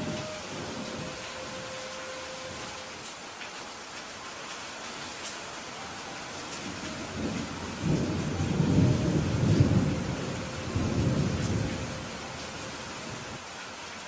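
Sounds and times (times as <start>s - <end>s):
steady rain: 0.0s - 14.0s
rolling thunder: 6.6s - 13.4s.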